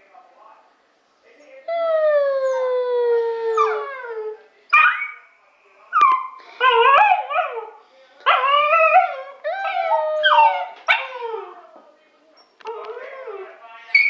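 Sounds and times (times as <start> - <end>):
dog howling and yipping: 6.0 - 11.8.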